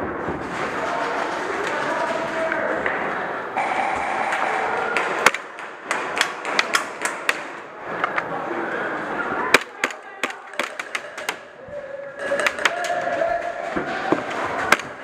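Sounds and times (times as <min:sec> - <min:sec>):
pellets striking hard surfaces: 0:04.2 - 0:07.6, 0:09.5 - 0:11.5, 0:12.2 - 0:13.0.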